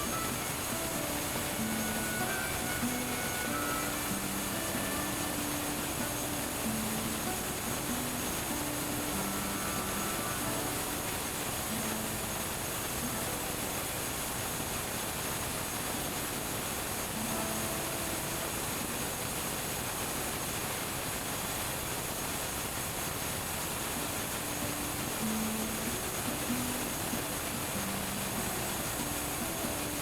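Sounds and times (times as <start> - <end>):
faint short tones: 0.0 - 7.4
band sawmill hissing: 0.0 - 20.6.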